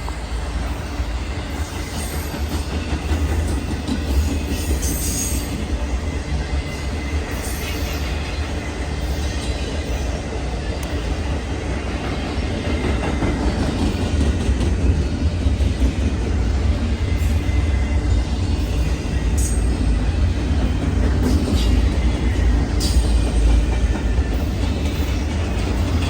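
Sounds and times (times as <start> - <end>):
train rumbling past on rails: 0.0 - 26.0.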